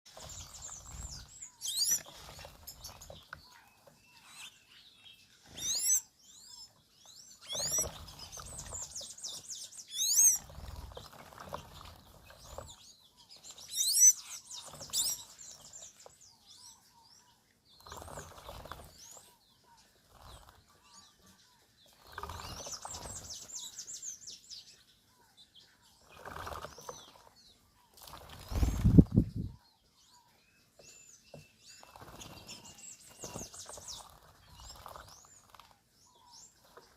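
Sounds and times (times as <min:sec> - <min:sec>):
birds wing-flapping: 0:10.3 - 0:12.8, 0:17.8 - 0:19.2, 0:22.0 - 0:23.7, 0:26.1 - 0:27.3, 0:27.9 - 0:29.4, 0:31.8 - 0:35.8.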